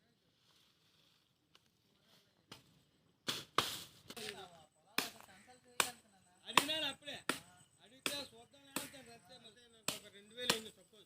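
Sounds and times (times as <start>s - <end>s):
blade hacking plant stems: 9.9s - 10.7s.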